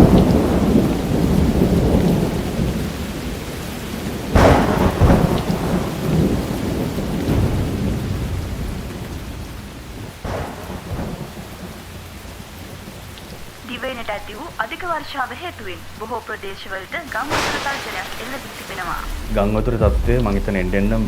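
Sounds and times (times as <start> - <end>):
sharp thunderclap: 0.0 - 3.4, 4.0 - 12.0, 17.1 - 21.0
rolling thunder: 0.0 - 13.6, 17.1 - 21.0
heavy rain: 0.0 - 21.0.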